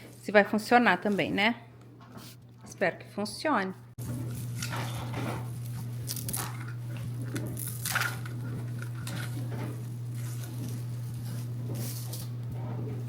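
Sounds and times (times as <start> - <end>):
low hum: 3.8 - 13.0
plastic crinkling: 4.2 - 12.3.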